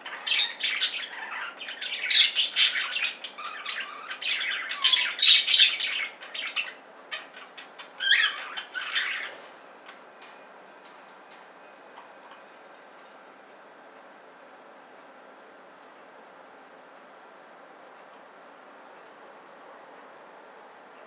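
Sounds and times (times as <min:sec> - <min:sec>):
budgerigars chattering: 0:00.1 - 0:09.3.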